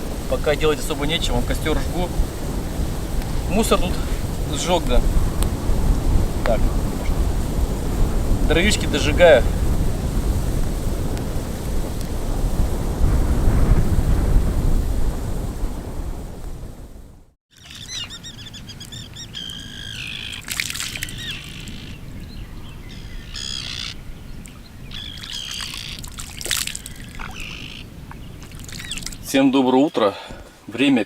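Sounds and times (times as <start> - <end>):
wind buffeting microphone: 0.0 - 29.6
songbirds chirping: 17.6 - 31.0.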